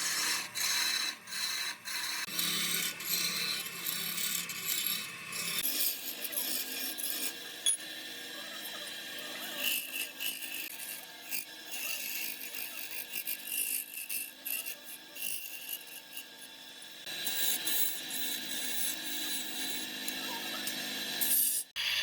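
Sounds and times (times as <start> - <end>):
wood scraping and rasping: 0.0 - 7.5, 8.4 - 16.4.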